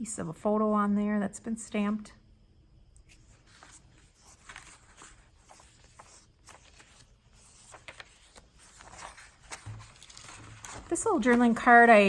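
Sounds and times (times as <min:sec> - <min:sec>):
paper rustling and scraping: 0:03.1 - 0:12.0.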